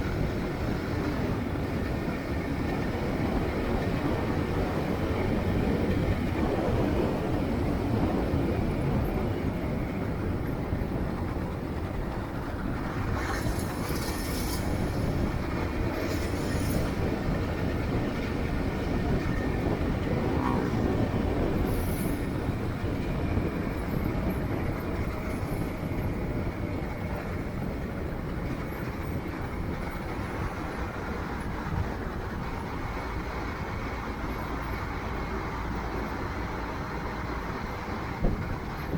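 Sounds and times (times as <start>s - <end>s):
vehicle rumble in motion: 0.0s - 38.9s.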